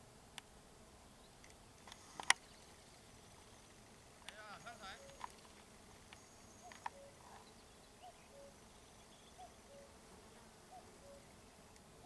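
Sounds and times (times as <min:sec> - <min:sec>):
small clicks: 0:01.4 - 0:02.4.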